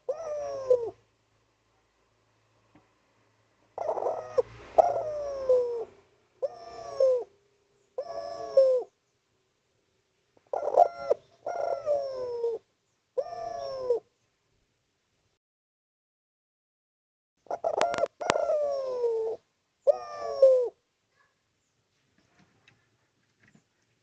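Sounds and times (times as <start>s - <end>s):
dove cooing: 0.0s - 1.0s, 3.8s - 9.0s, 10.4s - 14.1s, 17.4s - 21.3s.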